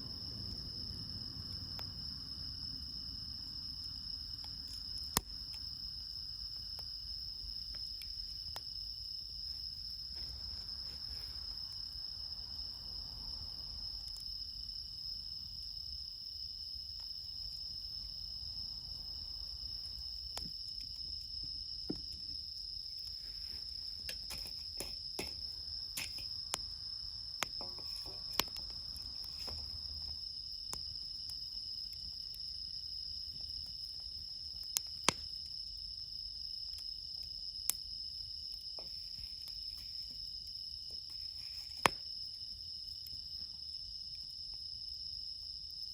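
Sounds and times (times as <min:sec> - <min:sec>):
campfire wood popping and crackling: 0:00.0 - 0:10.8, 0:19.6 - 0:44.6
crickets trilling: 0:00.0 - 0:45.9.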